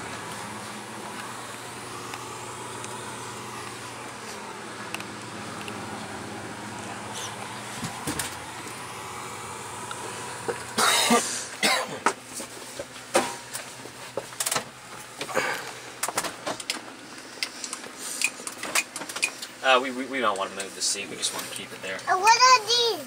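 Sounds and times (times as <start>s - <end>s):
person coughing: 10.8s - 12.1s.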